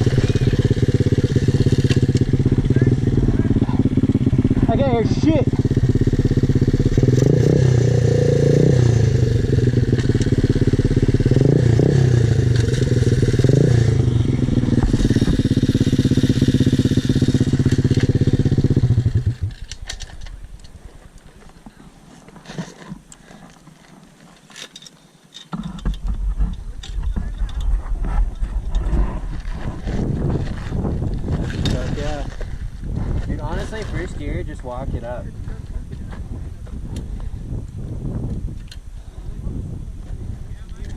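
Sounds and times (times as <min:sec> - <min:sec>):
motorbike engine revving: 0:00.0 - 0:19.8
low rumble: 0:00.0 - 0:21.2, 0:26.0 - 0:40.9
faint clicks and scrapes: 0:19.3 - 0:34.5.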